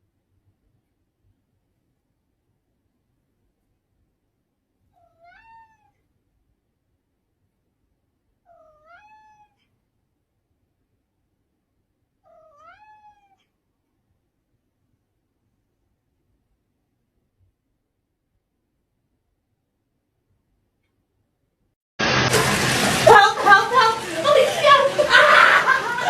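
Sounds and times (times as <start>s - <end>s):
cat meowing: 4.9s - 6.0s, 8.5s - 9.7s, 12.2s - 13.5s.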